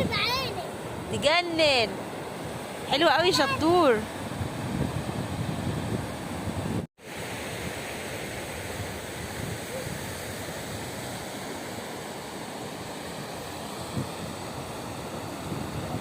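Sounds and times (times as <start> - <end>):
wind buffeting microphone: 0.0 - 6.9, 13.8 - 16.0
sea surf breaking on beach: 0.0 - 16.0.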